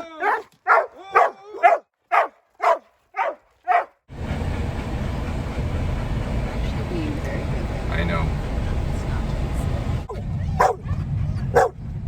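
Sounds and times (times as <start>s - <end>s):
dogs barking: 0.2s - 6.9s, 10.1s - 11.8s
low rumbling noise: 4.1s - 12.0s.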